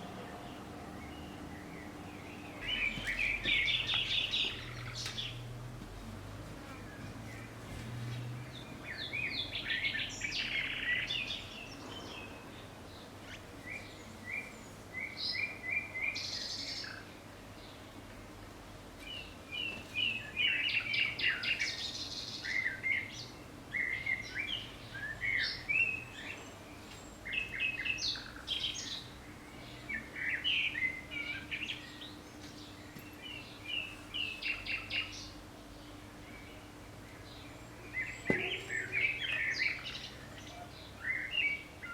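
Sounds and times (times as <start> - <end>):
birds chirping and twittering: 0.0 - 41.9
faint steady hum: 0.0 - 41.9.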